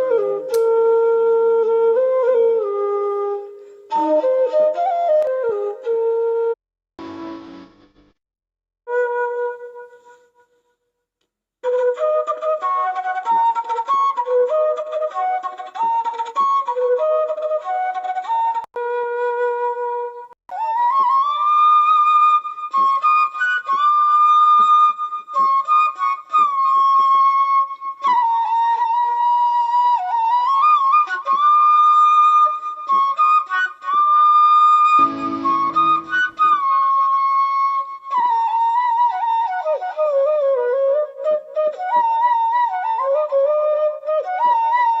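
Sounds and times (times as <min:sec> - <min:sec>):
flute melody: 0:00.0 - 0:06.6, 0:08.9 - 0:10.6, 0:11.6 - 0:45.0
noisy swell with lower tones: 0:35.0 - 0:36.5.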